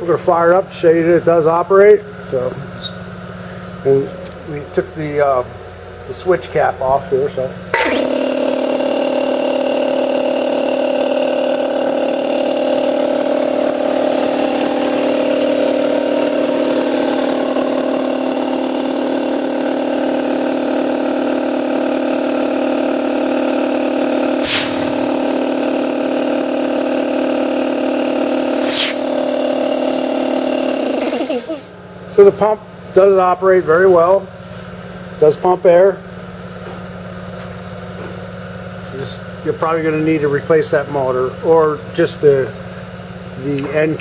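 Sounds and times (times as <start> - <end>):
air compressor running: 0.0 - 44.0.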